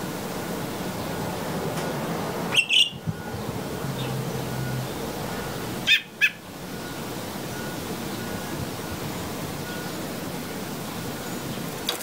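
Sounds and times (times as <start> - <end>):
bird chirping: 2.5 - 5.1, 5.8 - 11.7.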